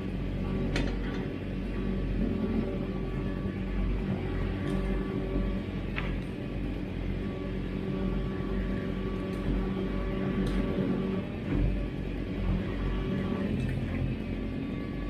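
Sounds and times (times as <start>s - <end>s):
excavator diesel engine running: 0.0s - 15.0s
faint machine clanks: 0.5s - 1.6s.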